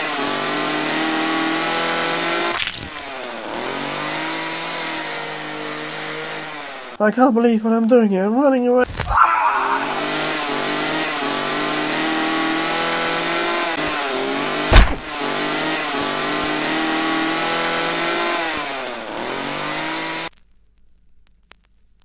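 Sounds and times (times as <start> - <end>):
chainsaw engine running hard: 0.0 - 7.0, 9.2 - 20.3
sharp crack: 14.7 - 15.1.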